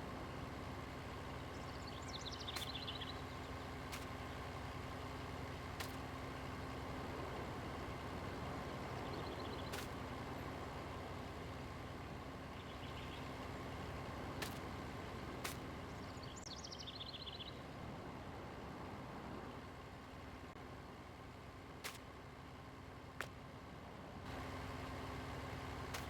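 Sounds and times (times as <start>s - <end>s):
engine idling: 0.0s - 26.0s
rapid bird chirps: 1.3s - 4.8s, 7.7s - 10.3s, 12.4s - 17.7s
sharp clicks: 2.4s - 3.1s, 5.8s - 6.1s.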